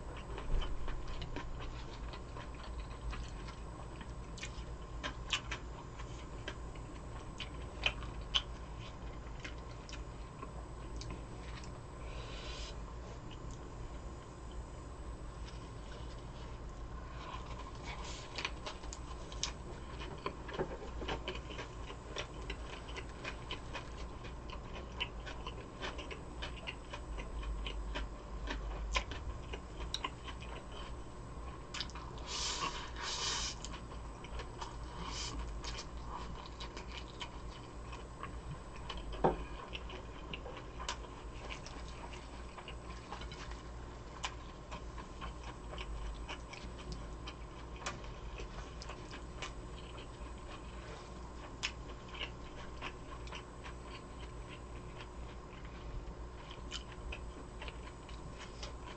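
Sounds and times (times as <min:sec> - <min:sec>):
wet chewing and mouth clicks: 0:15.4 - 0:32.3, 0:33.5 - 0:55.8, 0:56.4 - 0:58.9.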